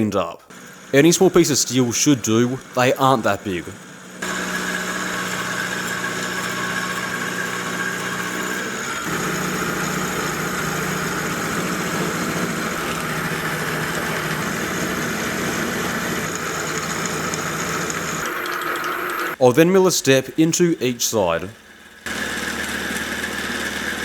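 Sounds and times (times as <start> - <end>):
milling machine humming: 0.5 - 19.4, 21.6 - 24.0.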